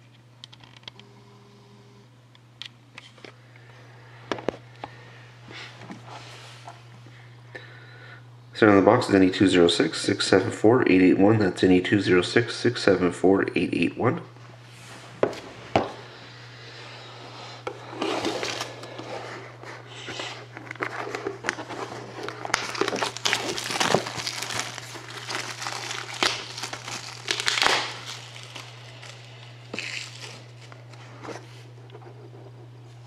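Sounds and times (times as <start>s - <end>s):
plastic wrap crinkling and tearing: 17.9s - 19.2s, 20.0s - 31.0s.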